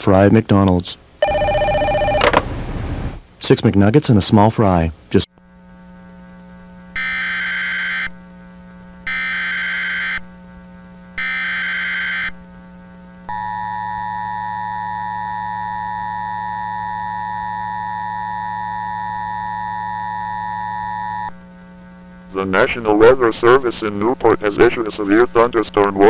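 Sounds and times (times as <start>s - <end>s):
low steady hum: 0.0s - 5.1s
data burst tones: 1.2s - 3.2s
two-tone attention signal: 1.2s - 3.2s.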